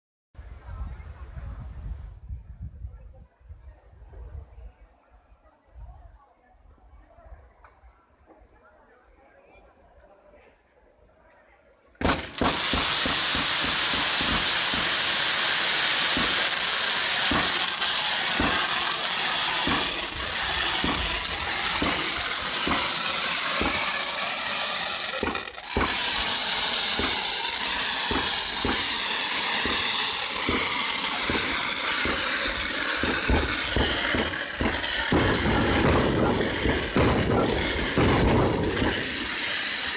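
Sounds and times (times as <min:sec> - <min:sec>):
fireworks hissing: 0:12.0 - 0:39.9
fireworks popping and banging: 0:12.0 - 0:39.9.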